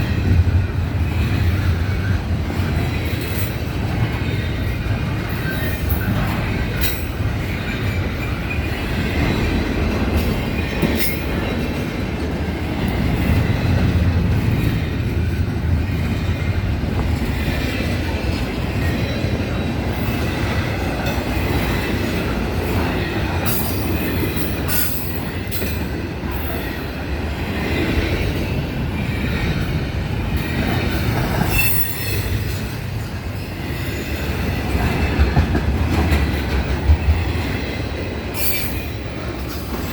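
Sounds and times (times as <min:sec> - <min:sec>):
rumble of rail cars: 0:00.0 - 0:39.9
wheels clicking on rail joints: 0:00.0 - 0:39.9
faint wheel squeal: 0:31.5 - 0:32.4.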